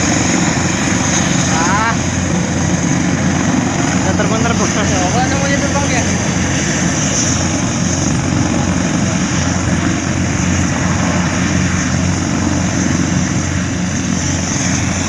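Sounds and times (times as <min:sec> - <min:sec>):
propeller aircraft engine drone: 0:00.0 - 0:15.0.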